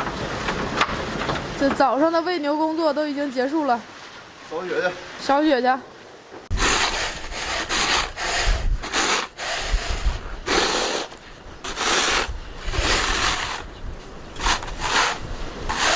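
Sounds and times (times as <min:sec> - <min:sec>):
broom sweeping snow: 0:06.5 - 0:15.9
wind buffeting microphone: 0:06.5 - 0:15.9.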